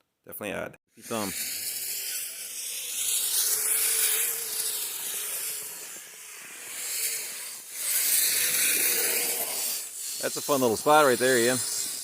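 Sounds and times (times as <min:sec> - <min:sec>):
electric motor whine: 0:01.0 - 0:12.0
tracks hissing through snow: 0:04.1 - 0:12.0.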